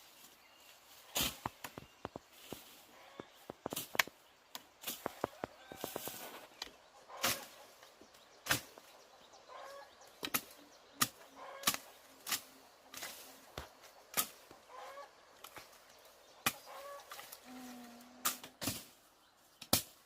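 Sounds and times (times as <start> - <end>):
chickens clucking faintly: 0.6 - 18.6.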